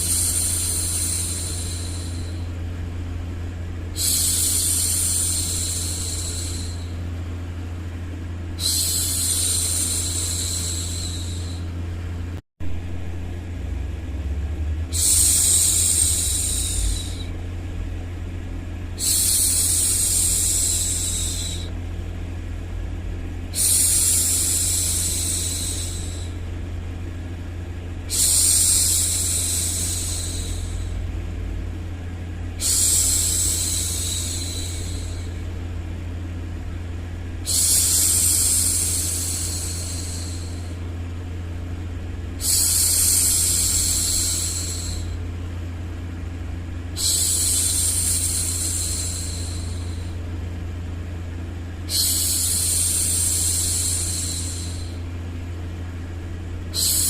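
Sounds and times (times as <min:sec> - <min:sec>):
low white noise rumble: 0:00.0 - 0:57.0
woman shushing: 0:08.6 - 0:11.7, 0:14.9 - 0:17.4, 0:28.1 - 0:31.0, 0:32.6 - 0:35.4, 0:37.4 - 0:40.8, 0:47.0 - 0:50.2, 0:51.9 - 0:55.0, 0:56.7 - 0:57.0.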